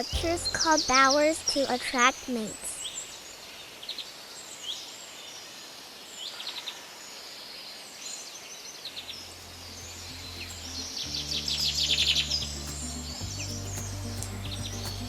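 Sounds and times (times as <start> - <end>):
low music drone: 0.0 - 1.6, 9.2 - 15.0
outdoor ambience hiss: 0.0 - 15.0.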